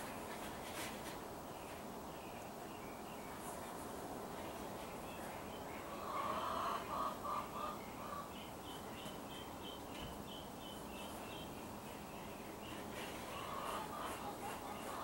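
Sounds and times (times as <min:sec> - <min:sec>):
faint outdoor hiss: 0:00.0 - 0:15.0
birds calling: 0:04.4 - 0:15.0.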